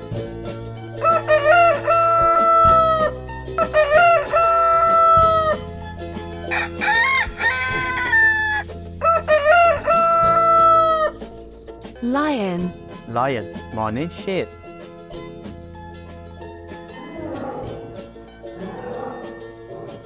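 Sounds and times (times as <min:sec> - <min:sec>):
background music: 0:00.0 - 0:20.0
rooster crowing: 0:01.0 - 0:05.6, 0:06.4 - 0:11.1.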